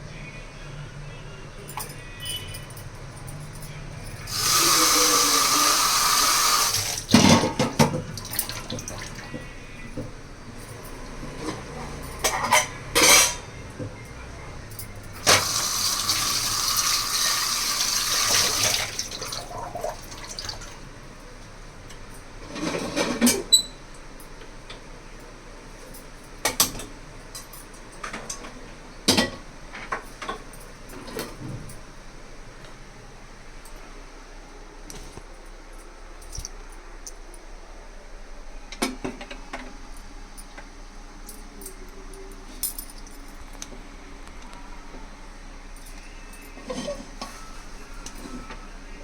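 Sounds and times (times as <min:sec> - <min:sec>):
dishes and utensils clinking: 0:01.7 - 0:20.6, 0:21.9 - 0:24.4, 0:26.0 - 0:31.8, 0:45.9 - 0:48.7
kitchen tap running: 0:04.2 - 0:09.5, 0:15.2 - 0:20.9.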